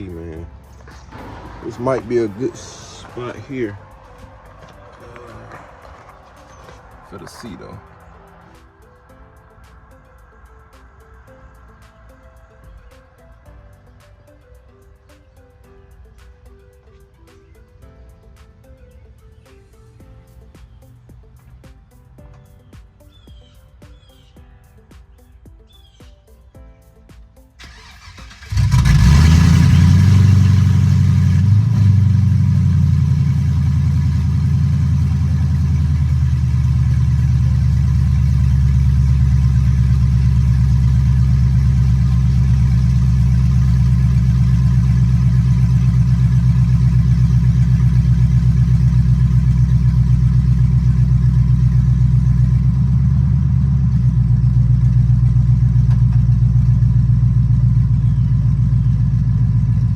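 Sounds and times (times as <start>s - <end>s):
loud car engine starting and idling: 0.0s - 8.5s, 27.6s - 59.9s.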